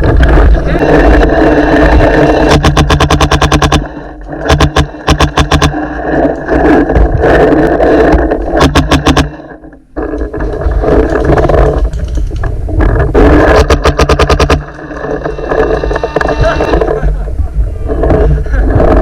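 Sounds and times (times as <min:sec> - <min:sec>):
steady rumbling noise: 0:00.0 - 0:19.0
paintball marker firing bursts: 0:02.4 - 0:05.8, 0:08.6 - 0:09.4, 0:13.4 - 0:14.7.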